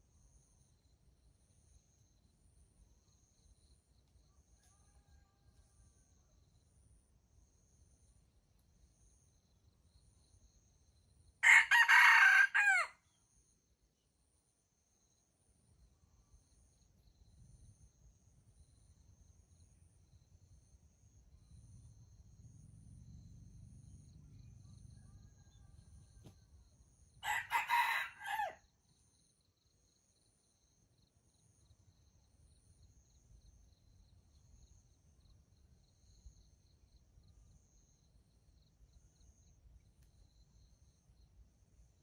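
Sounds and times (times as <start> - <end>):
rooster crowing: 4.6 - 5.8, 11.4 - 13.0, 25.0 - 25.9, 27.2 - 28.6.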